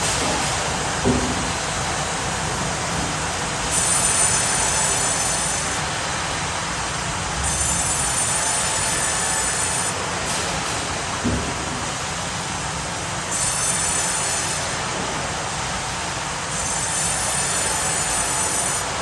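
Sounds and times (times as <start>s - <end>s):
sawmill machinery running: 0.0s - 19.0s
saw blade whining: 3.7s - 5.8s, 7.4s - 10.0s, 16.5s - 18.9s.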